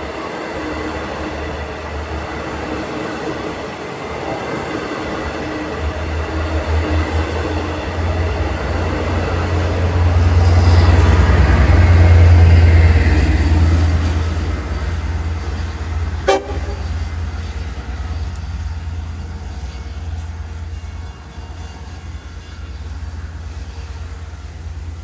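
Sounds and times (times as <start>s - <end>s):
train passing rumble: 0.0s - 25.0s.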